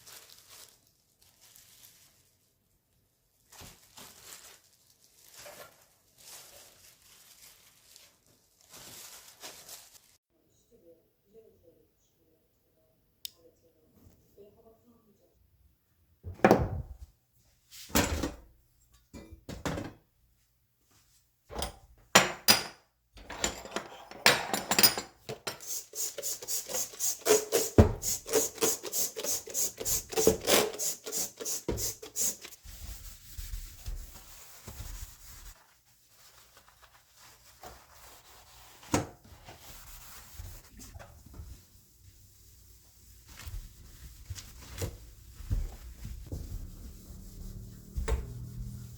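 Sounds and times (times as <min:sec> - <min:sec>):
rapid rubbing or scraping strokes: 0:46.0 - 0:48.9.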